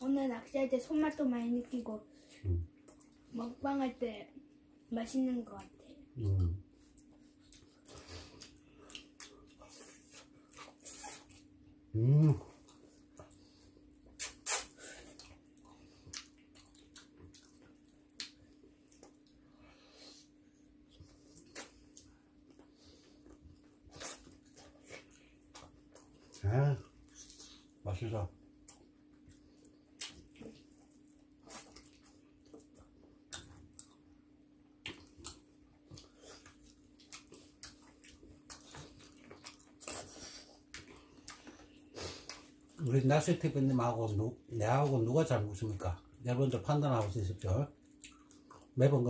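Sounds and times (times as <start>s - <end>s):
low steady hum: 0.0s - 49.0s
wet chewing clicks and smacks: 2.8s - 3.3s, 6.8s - 11.6s, 12.5s - 19.5s, 20.5s - 27.8s, 28.5s - 42.9s, 46.8s - 48.8s.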